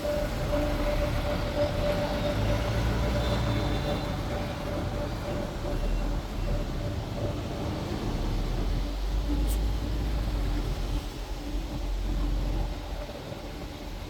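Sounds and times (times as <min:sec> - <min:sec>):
street traffic: 0:00.0 - 0:10.8
bus engine rumble: 0:00.0 - 0:13.9.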